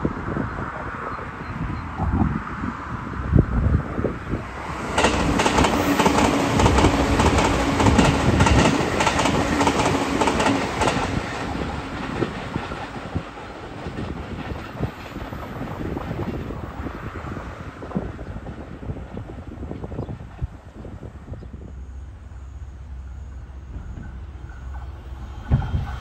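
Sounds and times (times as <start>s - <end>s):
electric train hum: 0.0s - 26.0s
train wheels clattering on track: 4.6s - 20.6s, 23.7s - 26.0s.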